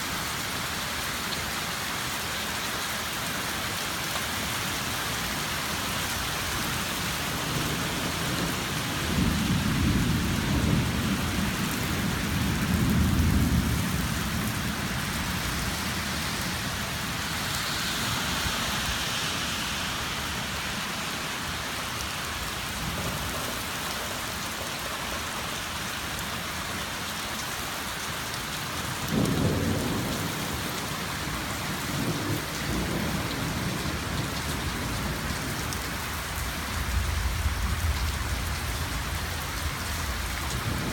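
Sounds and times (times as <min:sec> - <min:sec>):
rain falling: 0:00.0 - 0:40.9
thunder rumbling: 0:07.4 - 0:19.0, 0:29.1 - 0:35.6.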